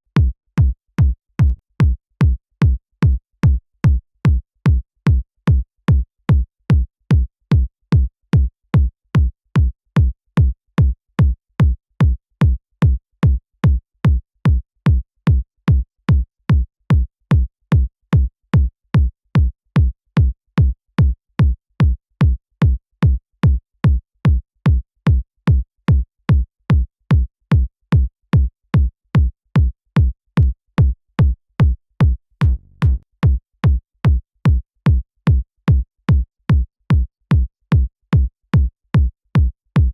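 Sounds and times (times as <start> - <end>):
electronic kick drum: 0.2 - 5.6, 28.4 - 39.9.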